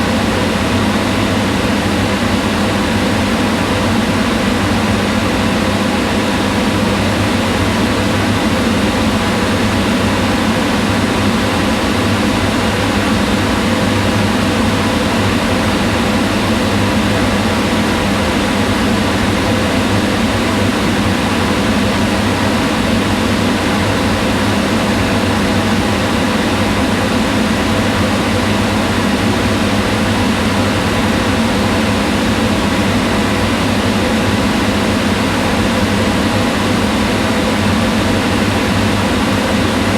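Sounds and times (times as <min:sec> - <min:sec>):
range hood fan whirring: 0:00.0 - 0:39.9.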